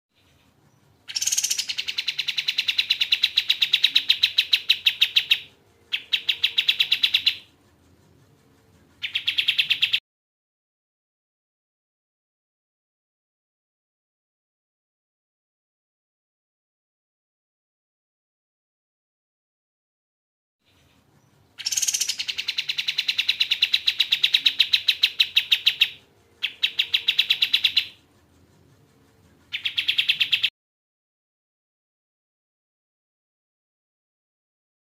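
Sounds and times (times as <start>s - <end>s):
bird singing fast trills: 0.2s - 7.5s, 9.0s - 10.0s, 20.7s - 28.0s, 29.5s - 30.5s.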